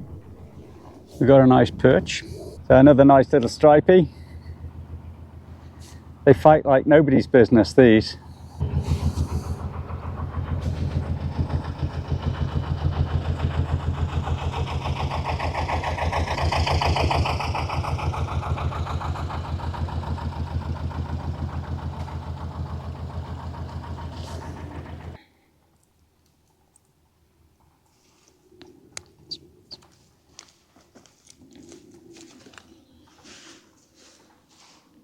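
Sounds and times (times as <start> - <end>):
diesel engine thudding: 0.0 - 6.6, 7.6 - 25.2.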